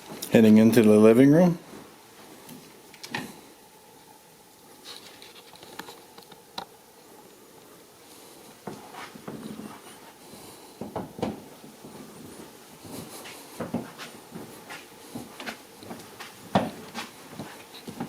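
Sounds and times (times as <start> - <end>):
footsteps indoors: 8.1 - 18.0.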